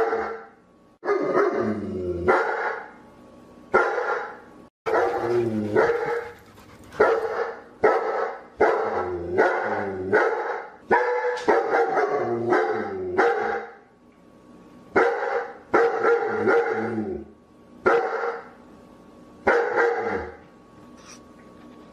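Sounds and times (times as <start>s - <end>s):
dog barking: 0.0s - 1.6s, 2.3s - 2.9s, 3.7s - 13.8s, 15.0s - 16.9s, 17.9s - 18.5s, 19.5s - 20.4s.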